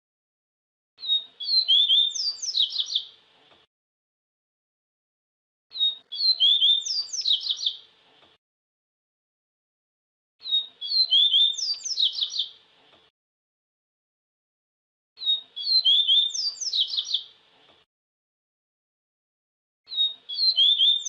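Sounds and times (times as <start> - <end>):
bird twittering song: 1.0 - 3.2, 5.7 - 7.9, 10.4 - 12.6, 15.2 - 17.4, 19.9 - 21.0.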